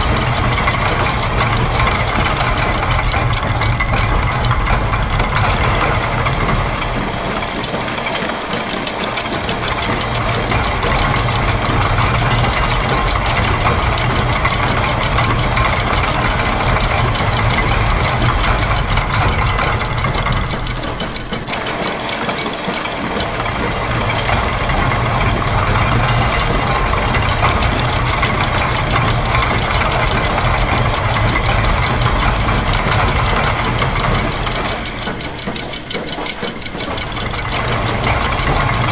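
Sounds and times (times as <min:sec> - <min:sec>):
mechanical clatter: 0:00.0 - 0:38.9.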